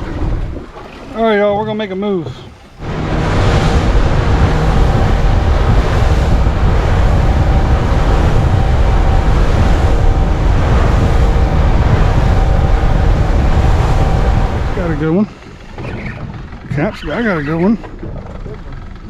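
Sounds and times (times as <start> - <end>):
wind rush on microphone: 0.0 - 0.9, 2.4 - 16.9
boat engine humming: 0.0 - 19.0
water noise from hull: 0.0 - 19.0.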